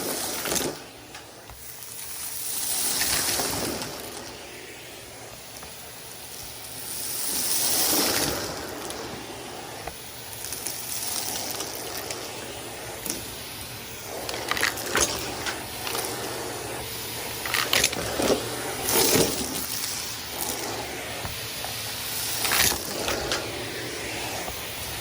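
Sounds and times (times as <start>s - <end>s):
debris rattling up the hose: 0.0s - 0.9s, 1.8s - 4.2s, 10.4s - 12.2s, 14.1s - 20.6s, 21.4s - 23.5s
vacuum cleaner running: 0.0s - 25.0s.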